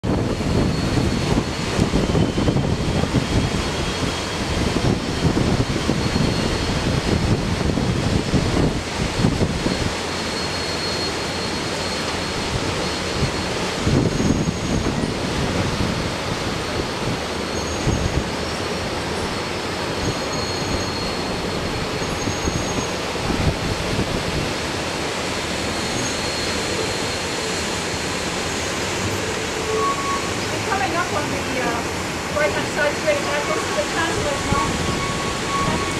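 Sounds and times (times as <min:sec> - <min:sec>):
wind buffeting microphone: 0:00.0 - 0:10.0, 0:12.4 - 0:18.4, 0:21.4 - 0:24.8
train rumbling: 0:00.0 - 0:35.9.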